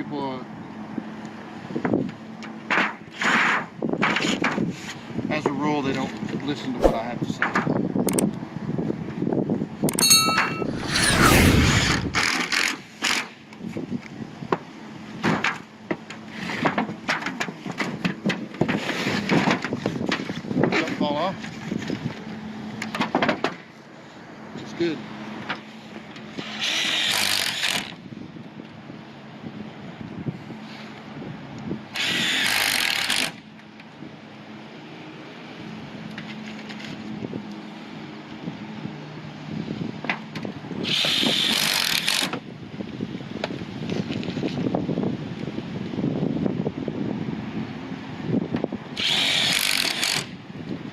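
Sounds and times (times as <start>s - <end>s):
power drill driving screw into metal: 32.0s - 33.3s, 40.8s - 42.3s, 49.0s - 50.3s.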